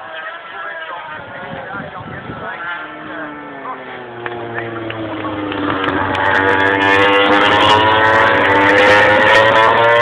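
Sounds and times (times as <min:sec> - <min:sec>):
racing motorcycles at high revs: 0:02.4 - 0:10.0.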